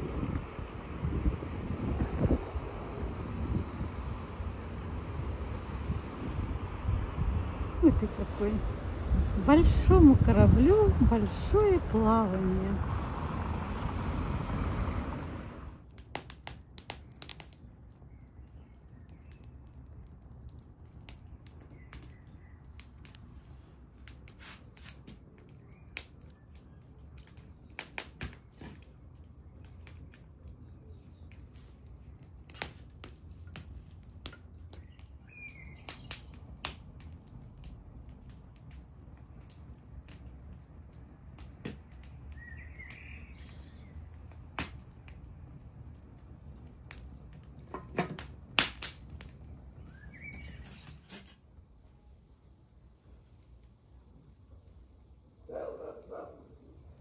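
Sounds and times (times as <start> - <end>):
campfire crackling and popping: 0.0 - 51.7, 53.0 - 55.2
bird chirping: 30.5 - 31.4, 34.7 - 36.5, 42.2 - 44.2, 49.8 - 51.1.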